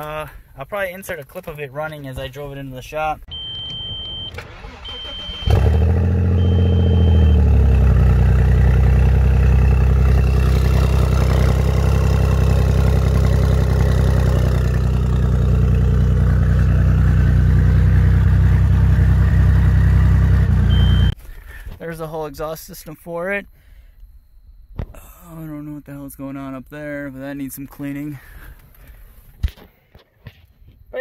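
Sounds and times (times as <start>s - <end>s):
car engine starting and idling: 3.3s - 21.2s.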